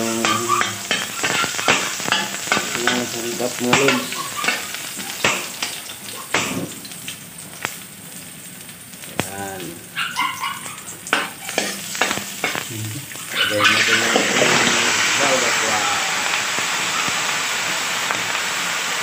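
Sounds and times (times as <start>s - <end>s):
dog whining: 0.0s - 2.1s, 4.0s - 5.1s, 9.9s - 11.6s, 12.9s - 14.9s
metal spatula scraping a wok: 0.0s - 5.8s, 11.1s - 15.7s
garlic and onion sizzling in oil: 0.0s - 19.0s.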